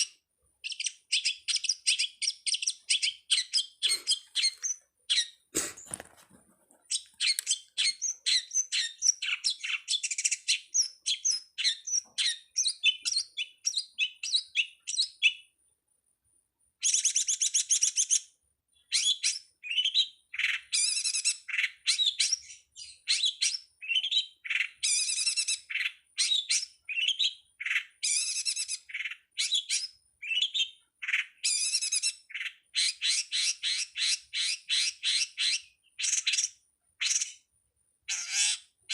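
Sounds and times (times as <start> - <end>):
bird singing high chirps: 0.0 - 5.5, 6.9 - 15.6, 16.8 - 38.8
harsh scratchy bird chattering: 2.6 - 12.4, 38.1 - 38.8.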